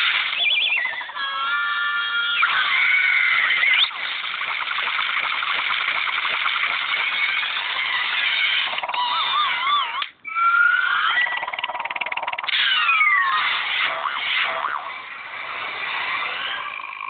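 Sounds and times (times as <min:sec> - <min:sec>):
cartoon squeals: 0:00.0 - 0:04.0, 0:07.1 - 0:17.0
noisy background: 0:00.0 - 0:10.4
warbling whistle-like tones: 0:00.1 - 0:01.2, 0:03.2 - 0:07.8.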